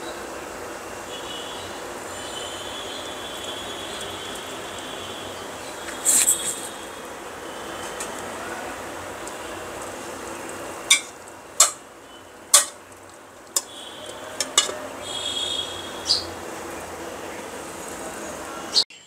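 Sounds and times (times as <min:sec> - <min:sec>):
metal utensils clinking on cookware: 0:10.9 - 0:11.8, 0:12.5 - 0:12.8, 0:13.6 - 0:15.0.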